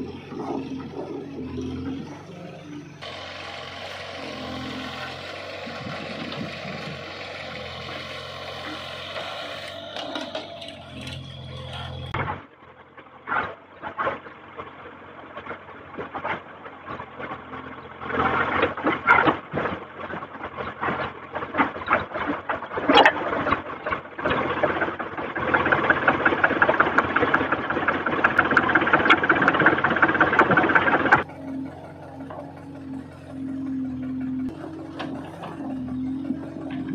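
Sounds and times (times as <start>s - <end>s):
diesel engine working: 0.0s - 36.9s
fast mechanical rattle: 18.1s - 36.9s.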